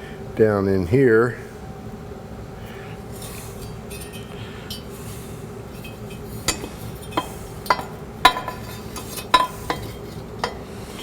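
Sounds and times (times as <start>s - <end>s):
metal parts scraping: 3.1s - 11.0s.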